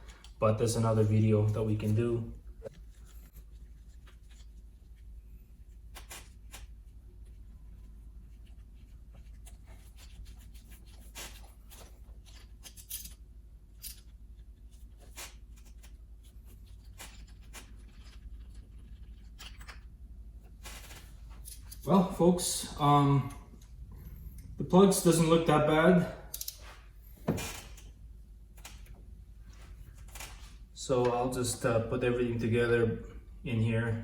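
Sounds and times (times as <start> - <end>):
low steady hum: 0.0 - 34.0
clicks and rustles of tools: 16.9 - 22.1, 26.3 - 31.2.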